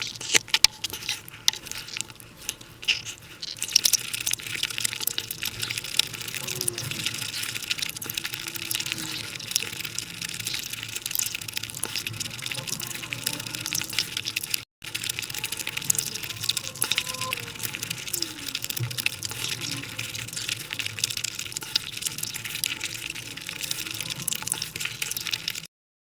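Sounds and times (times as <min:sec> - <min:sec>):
wet chewing and lip-smacking: 0:00.0 - 0:25.7.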